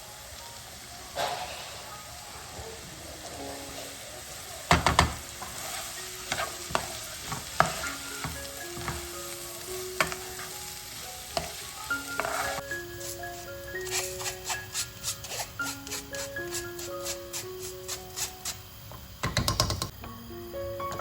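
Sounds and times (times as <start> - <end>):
soft background music: 0.0 - 21.0
steady hiss: 0.0 - 21.0
kitchen knocks and clinks: 18.9 - 19.9.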